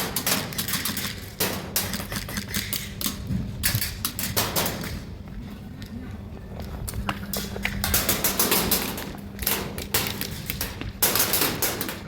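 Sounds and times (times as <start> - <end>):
airsoft guns firing: 0.0 - 2.8.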